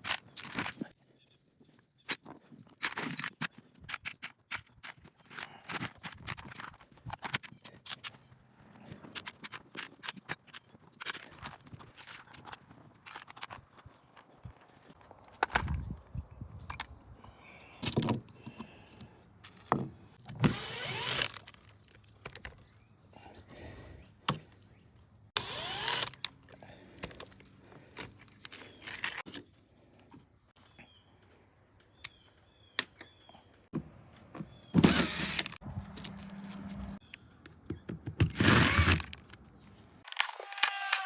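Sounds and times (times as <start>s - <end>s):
metal parts knocking and clattering: 0.0s - 0.8s, 2.1s - 8.2s, 9.0s - 13.8s
cordless drill whining: 20.3s - 21.6s, 25.4s - 26.4s, 34.8s - 35.6s, 38.3s - 39.2s.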